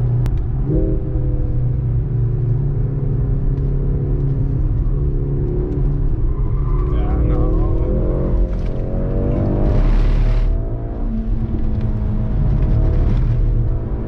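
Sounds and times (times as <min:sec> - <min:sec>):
car engine from inside cabin: 0:00.0 - 0:06.2.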